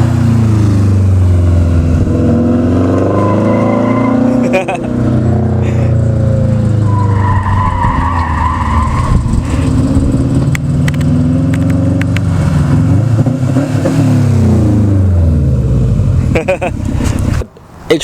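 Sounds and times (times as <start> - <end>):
car engine revving loud exhaust: 0.0 - 17.5
high turbo whine: 1.0 - 12.2.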